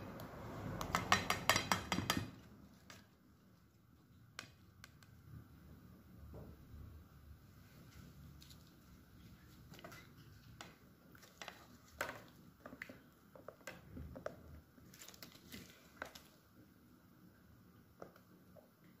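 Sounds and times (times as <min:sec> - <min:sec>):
faint clicks and taps: 0:04.3 - 0:05.3, 0:09.7 - 0:15.4, 0:17.9 - 0:19.0.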